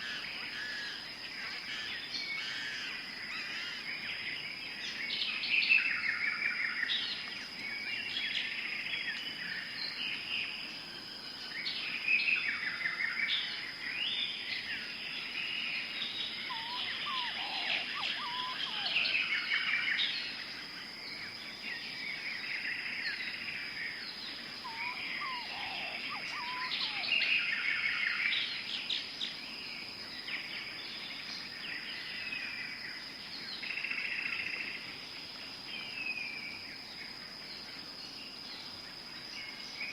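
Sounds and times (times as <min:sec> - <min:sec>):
birds chirping and calling: 0:15.6 - 0:20.2, 0:23.2 - 0:29.4
high-pitched insect drone: 0:16.4 - 0:20.0, 0:24.6 - 0:28.3
lower falling bird call: 0:16.5 - 0:19.3, 0:24.6 - 0:27.4.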